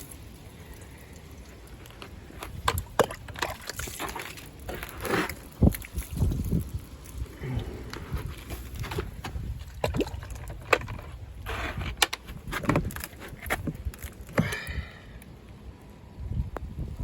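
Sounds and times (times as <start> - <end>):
wind rumbling on microphone: 1.6 - 17.0
ice cracking and knocking: 1.8 - 7.2, 7.8 - 14.7.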